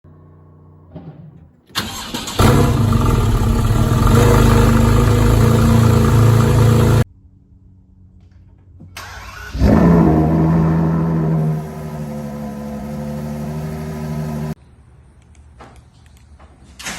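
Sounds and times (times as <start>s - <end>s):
second car engine idling: 1.8s - 7.0s
starter cranking: 1.8s - 7.0s
car engine revving at high idle: 2.3s - 7.0s, 10.5s - 14.6s.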